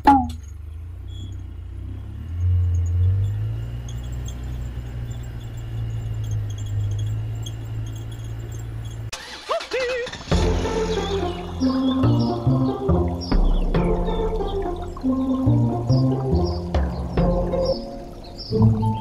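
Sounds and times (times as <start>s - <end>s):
vehicle low rumble: 0.0s - 19.0s.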